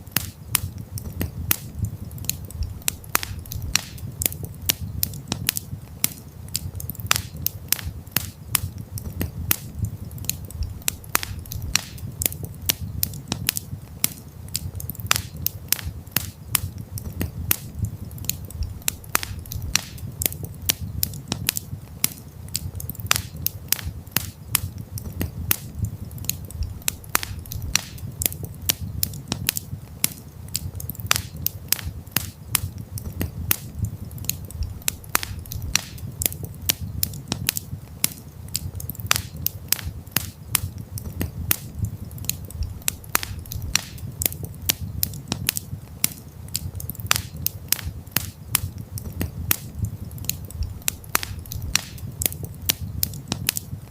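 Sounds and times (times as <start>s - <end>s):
campfire crackling and popping: 0.0s - 53.9s
low rumble of fire: 0.0s - 53.9s.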